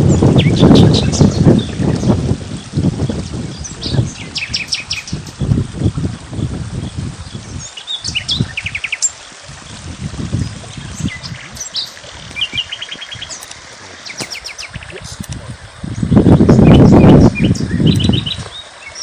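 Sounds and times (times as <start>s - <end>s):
small birds chirping: 0.1s - 19.0s.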